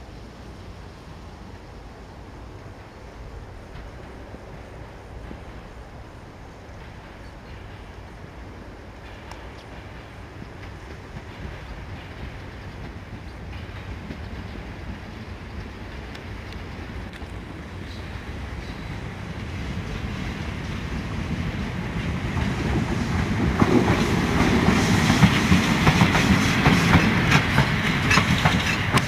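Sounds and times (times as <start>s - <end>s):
electric locomotive rolling: 0.0s - 29.0s
wheels clicking over track: 22.3s - 29.0s.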